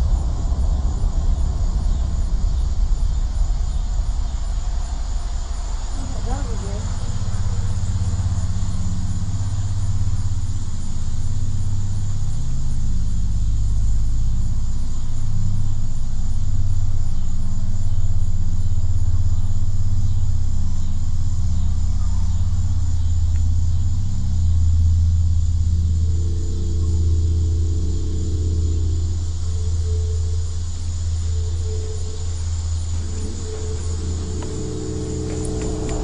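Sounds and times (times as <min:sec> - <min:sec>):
low rumbling drone: 0:00.0 - 0:36.0
higher hum: 0:27.6 - 0:36.0.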